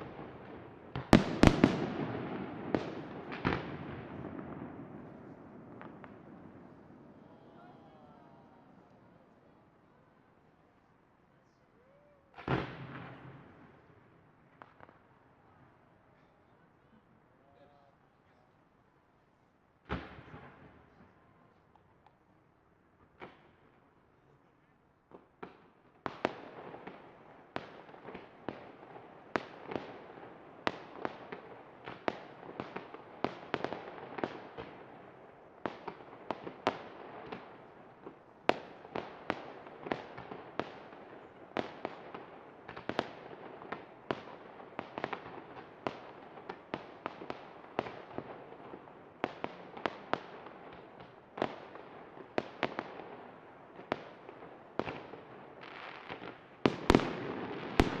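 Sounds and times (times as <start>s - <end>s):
fireworks bangs: 0.0s - 9.2s, 11.8s - 13.9s, 25.4s - 58.0s
fireworks crackle: 53.9s - 58.0s.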